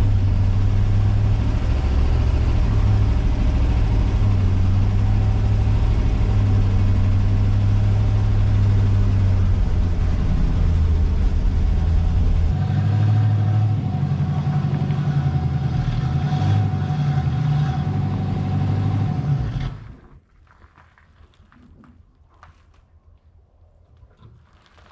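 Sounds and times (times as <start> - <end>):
car engine running: 0.0 - 19.8.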